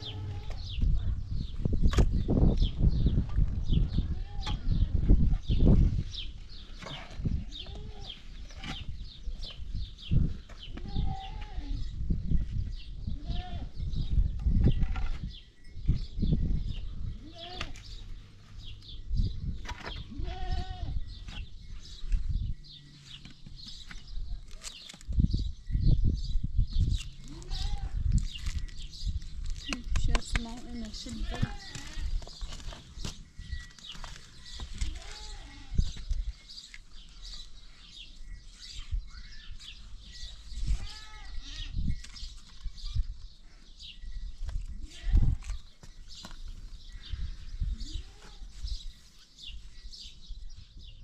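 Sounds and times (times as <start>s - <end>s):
goats or sheep bleating: 0.0s - 0.8s, 10.8s - 11.9s, 17.2s - 18.0s, 20.0s - 21.0s, 27.3s - 28.1s, 31.1s - 32.2s, 34.4s - 36.0s, 40.8s - 41.8s.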